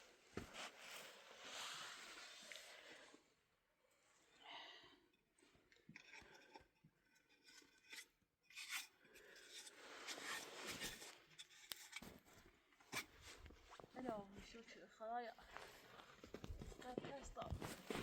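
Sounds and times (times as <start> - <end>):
rustling and scraping: 0.0 - 3.0, 6.0 - 14.6, 15.4 - 18.0.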